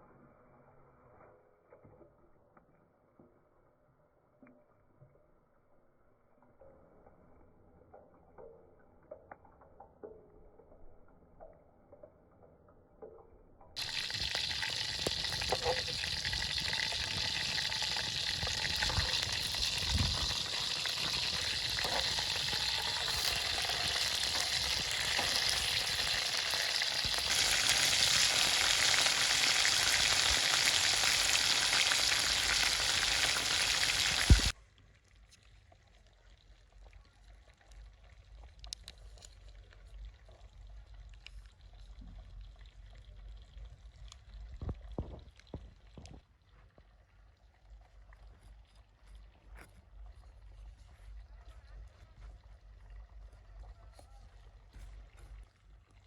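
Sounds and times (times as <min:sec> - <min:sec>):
food sizzling on a grill: 0:13.8 - 0:34.5.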